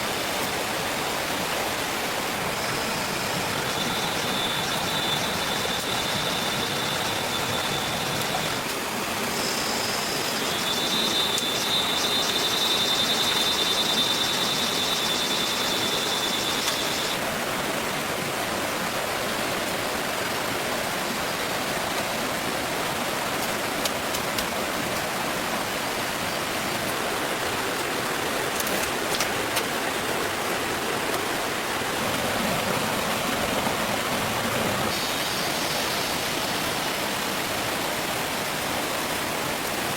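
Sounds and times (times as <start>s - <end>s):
water rushing: 0.0s - 39.9s
high pulsing trill: 3.5s - 8.6s, 9.3s - 17.2s.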